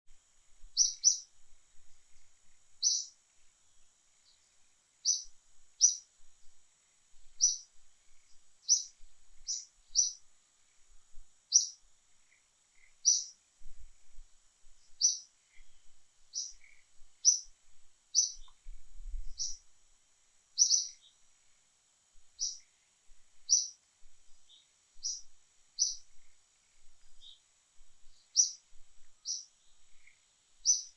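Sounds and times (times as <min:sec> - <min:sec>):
faint high hiss: 0:00.1 - 0:30.9
bird chirping: 0:00.7 - 0:01.3, 0:02.1 - 0:03.2, 0:04.2 - 0:06.1, 0:07.3 - 0:10.9, 0:11.5 - 0:13.4, 0:14.8 - 0:19.7, 0:20.6 - 0:21.2, 0:22.3 - 0:22.8, 0:23.4 - 0:30.9.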